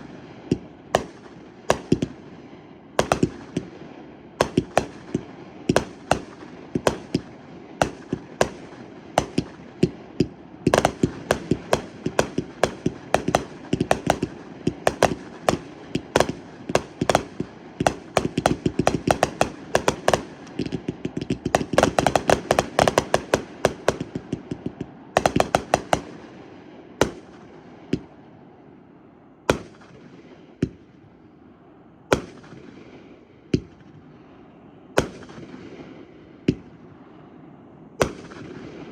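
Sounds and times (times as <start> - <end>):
fireworks bangs and crackles: 0.0 - 28.2, 38.0 - 38.9
distant explosions rumbling: 4.4 - 26.4.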